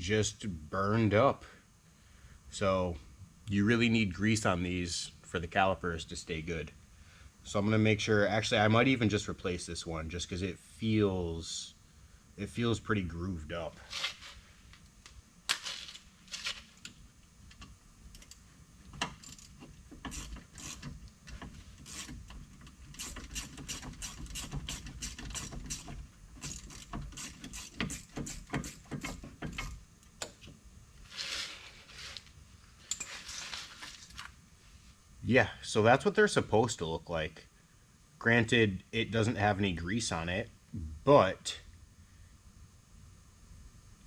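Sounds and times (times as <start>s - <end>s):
ratchet clicking: 19.0s - 21.0s, 21.8s - 30.3s.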